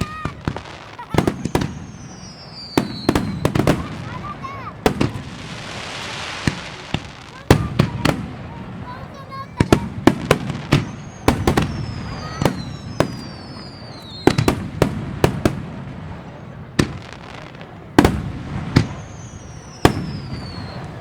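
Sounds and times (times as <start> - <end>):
fireworks bangs: 0.0 - 21.0
fireworks whistles falling in pitch: 0.0 - 21.0.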